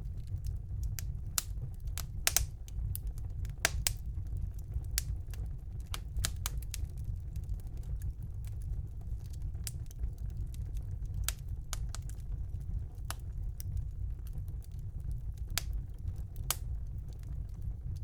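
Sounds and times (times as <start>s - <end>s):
fire crackling and popping: 0.0s - 18.0s
wood fire burning: 0.0s - 18.0s.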